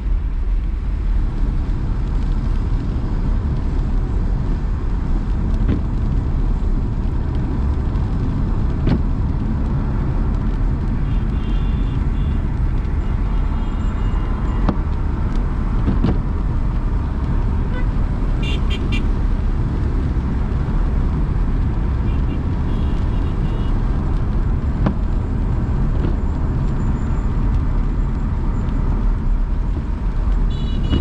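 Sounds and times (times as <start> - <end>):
car driving engine and tyre noise: 0.0 - 31.0
faint car horns beeping: 11.0 - 12.4, 13.0 - 14.7, 17.7 - 19.1, 30.5 - 31.0.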